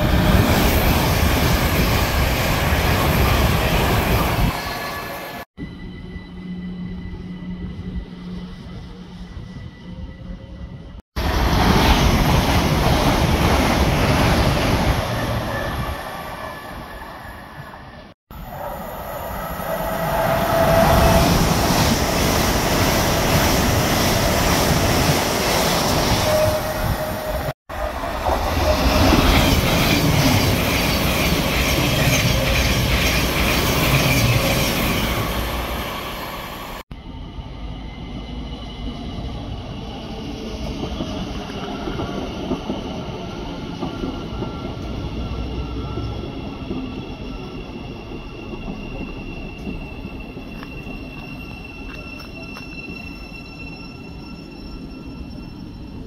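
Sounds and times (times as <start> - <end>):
train wheels roaring on rails: 0.0 - 56.0.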